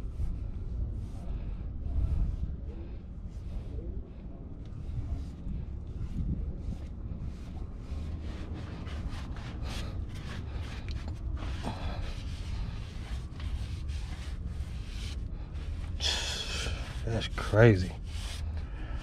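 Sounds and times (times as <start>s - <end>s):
low rumble: 0.0s - 17.2s
rubbing and scraping handling: 4.8s - 19.0s.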